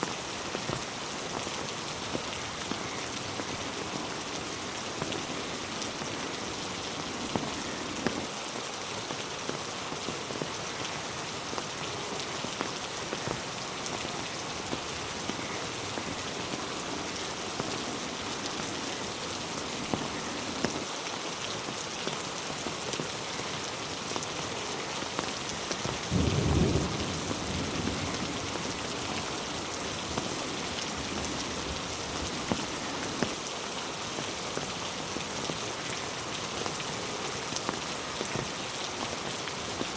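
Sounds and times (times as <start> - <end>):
raindrops ticking: 0.0 - 39.9
steady rain falling: 0.0 - 39.9
low rumble of thunder: 26.0 - 29.4.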